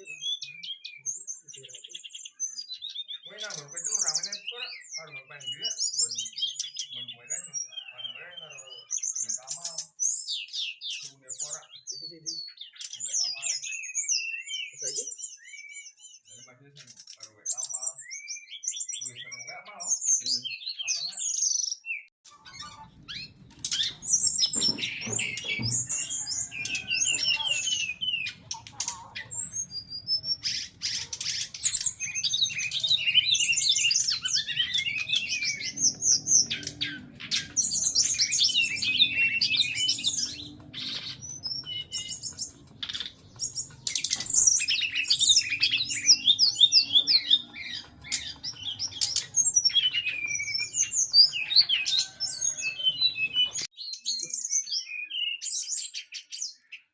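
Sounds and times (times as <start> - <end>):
bird singing high notes: 0.0 - 56.9.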